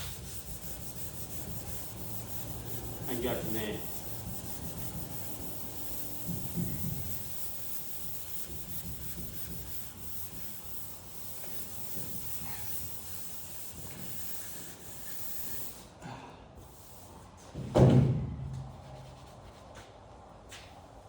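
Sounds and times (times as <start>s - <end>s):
sanding block rubbing on metal: 0.0s - 15.9s.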